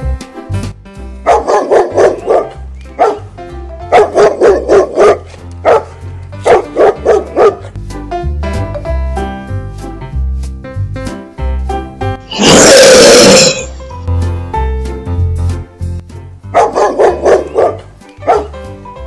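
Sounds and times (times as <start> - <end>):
background music with bass line: 0.0 - 19.0
dog barking: 1.2 - 3.3, 3.9 - 7.7, 16.5 - 18.5.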